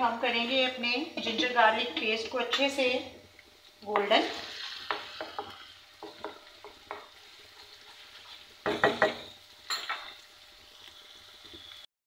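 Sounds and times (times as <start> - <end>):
paste sizzling in hot oil: 1.2 - 11.9
spatula scraping pan: 3.9 - 10.2.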